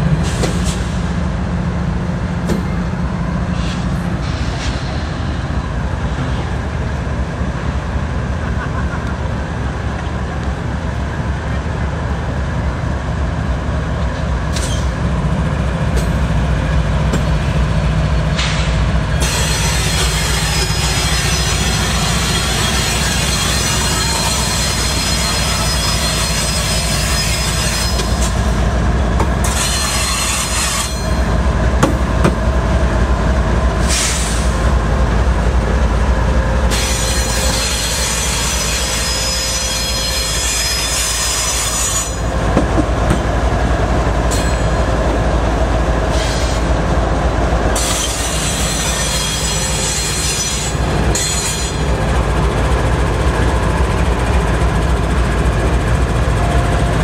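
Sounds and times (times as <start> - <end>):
diesel locomotive engine rumble: 0.0 - 57.0
train wheels squealing on rail: 3.5 - 6.8, 14.2 - 31.5, 33.8 - 34.8, 36.4 - 43.3, 44.2 - 45.2, 46.0 - 46.9, 47.7 - 53.4.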